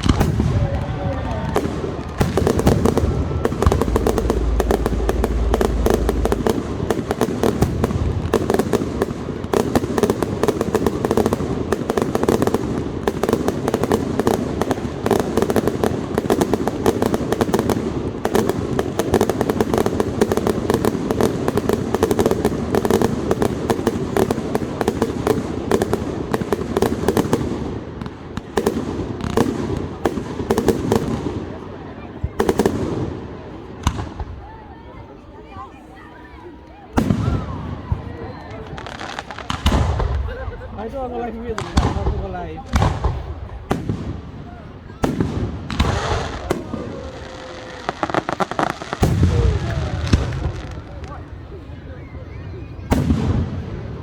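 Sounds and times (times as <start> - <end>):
deep firework boom: 0.0 - 9.6
fireworks bangs and crackling: 0.0 - 54.0.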